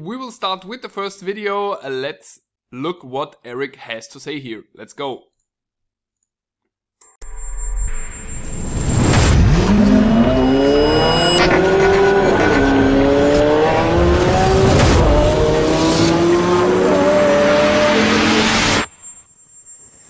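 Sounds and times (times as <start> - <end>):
sports car engine accelerating: 9.4 - 18.9.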